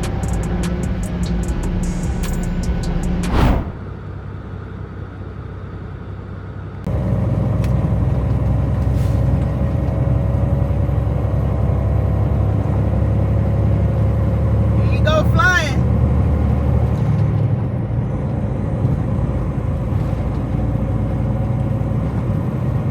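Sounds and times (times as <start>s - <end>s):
truck engine and road noise: 0.0s - 22.9s
falling whoosh: 3.2s - 3.9s.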